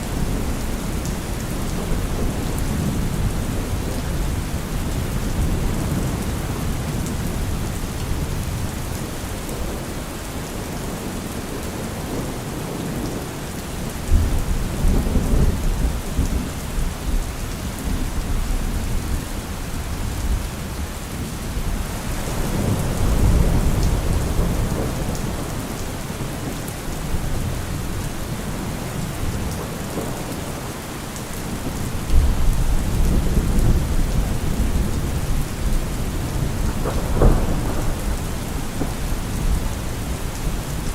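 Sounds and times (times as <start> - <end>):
steady rain: 0.0 - 40.9
rolling thunder: 31.6 - 40.9.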